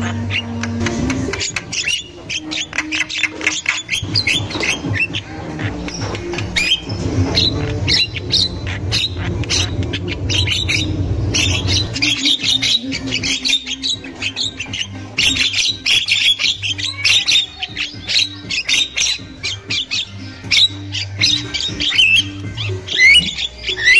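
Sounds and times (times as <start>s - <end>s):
birds chattering and squawking: 0.0s - 23.9s.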